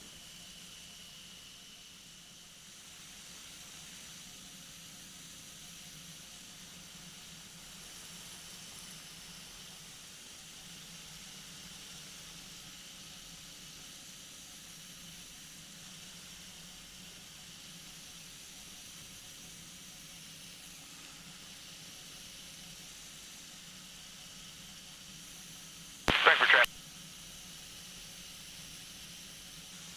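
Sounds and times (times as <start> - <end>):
muffled aircraft engine drone: 0.0 - 26.7
steady hiss: 26.1 - 26.7.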